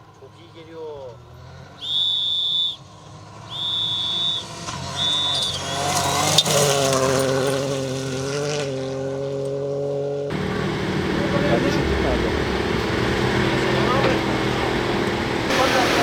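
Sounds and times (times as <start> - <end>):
car engine revving: 0.0 - 16.0
high electronic beeps: 3.6 - 6.4.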